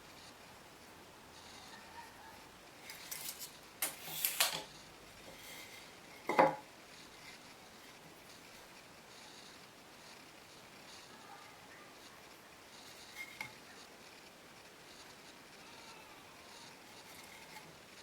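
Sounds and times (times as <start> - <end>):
hard objects scraping and clattering: 2.8 - 8.0, 12.7 - 13.7, 16.9 - 17.8.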